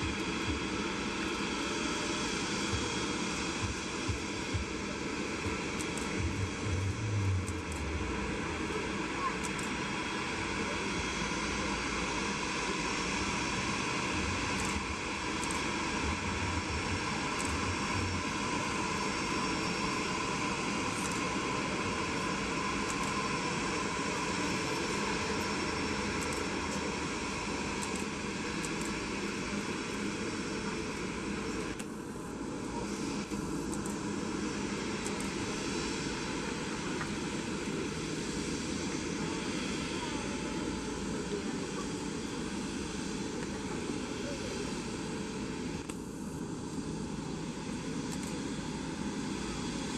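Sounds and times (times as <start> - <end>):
jet engines whining: 0.0 - 49.9.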